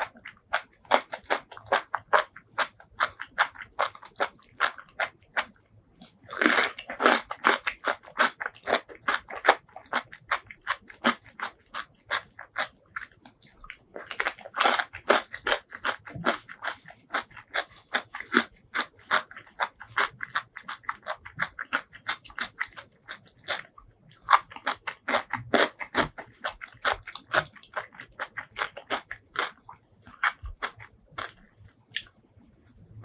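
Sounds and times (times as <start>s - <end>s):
biting: 0.0s - 32.9s
chewing: 0.0s - 33.0s.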